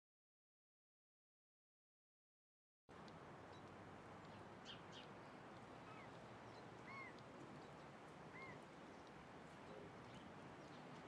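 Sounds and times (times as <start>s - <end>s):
outdoor background hiss: 2.9s - 11.0s
songbird chirps: 3.1s - 11.0s.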